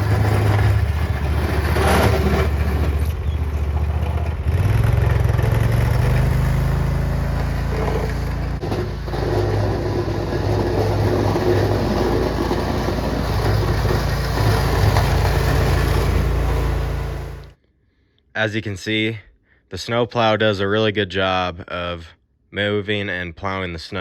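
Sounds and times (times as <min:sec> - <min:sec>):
lawn tractor engine running: 0:00.0 - 0:17.6
plow pushing snow: 0:00.0 - 0:17.6.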